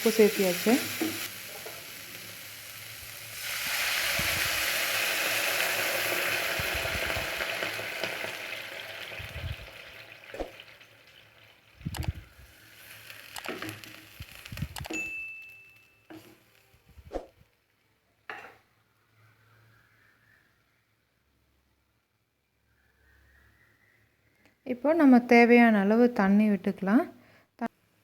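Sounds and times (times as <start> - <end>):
vegetables sizzling in hot oil: 0.0 - 14.9.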